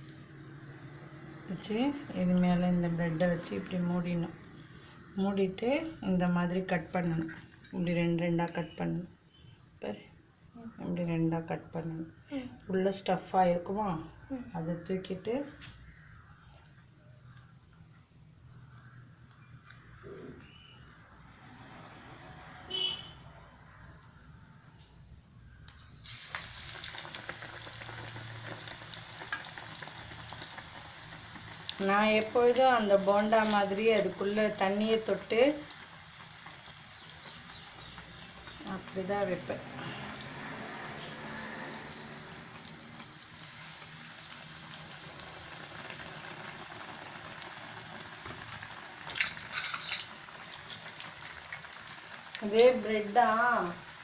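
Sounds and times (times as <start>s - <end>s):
oil sizzling and crackling: 0.0s - 8.7s, 25.6s - 54.0s.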